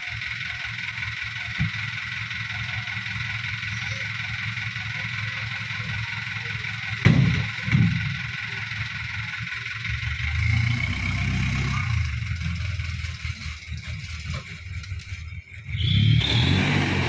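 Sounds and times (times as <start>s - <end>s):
truck diesel engine running: 0.0s - 17.0s.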